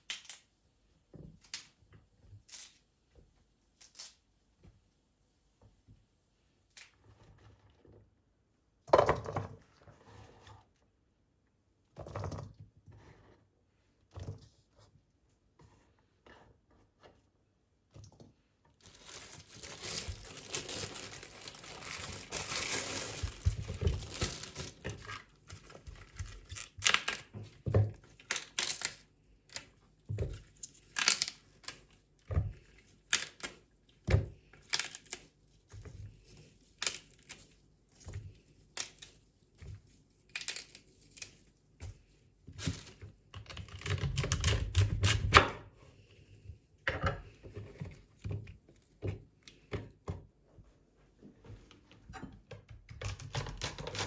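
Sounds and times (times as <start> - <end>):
packaging crinkling and tearing: 18.8 - 27.3, 30.5 - 31.9.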